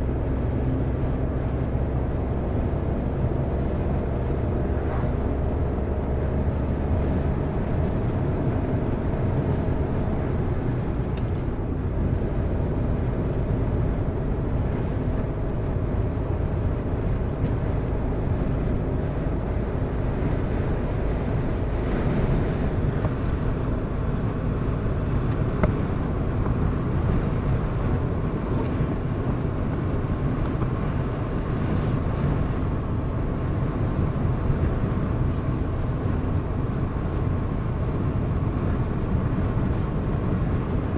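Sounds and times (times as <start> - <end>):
car engine and tyre noise: 0.0 - 40.9.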